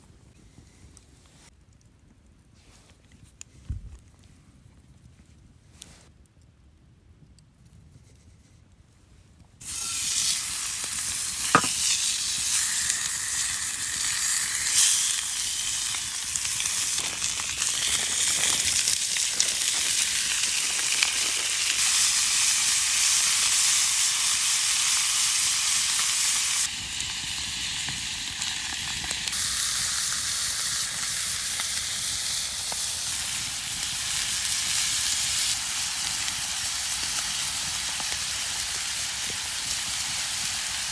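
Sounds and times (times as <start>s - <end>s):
food sizzling in a pan: 9.6s - 40.9s.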